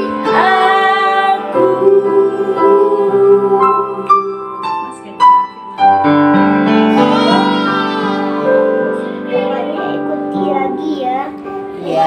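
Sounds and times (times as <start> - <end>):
piano keyboard notes and chord: 0.0 - 12.0.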